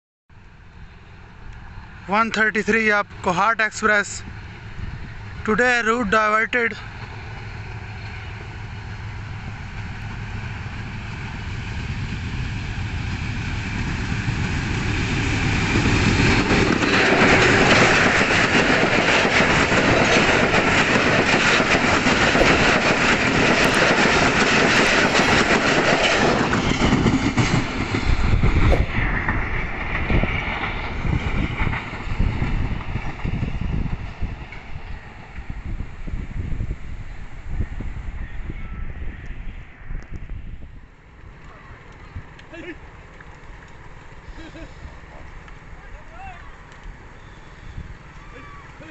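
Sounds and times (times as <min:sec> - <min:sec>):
diesel locomotive approaching: 0:00.3 - 0:48.9
train wheels rushing on rails: 0:00.9 - 0:38.4.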